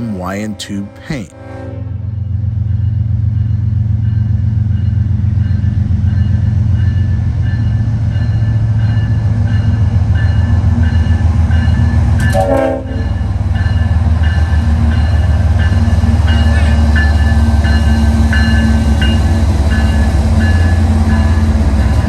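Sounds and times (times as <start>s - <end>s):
locomotive engine rumble: 2.5s - 22.0s.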